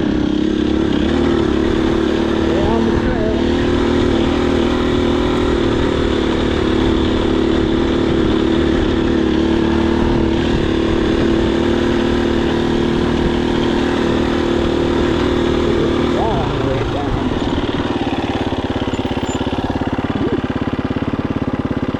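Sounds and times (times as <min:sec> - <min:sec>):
dirt bike engine running steadily: 0:00.0 - 0:21.9.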